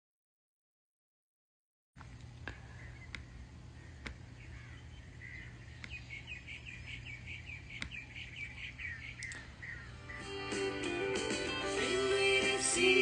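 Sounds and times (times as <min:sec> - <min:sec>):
sharp clicks: 0:02.0 - 0:03.3, 0:05.8 - 0:06.0, 0:07.7 - 0:08.0, 0:09.2 - 0:09.5
faint bird chirping: 0:02.4 - 0:10.6.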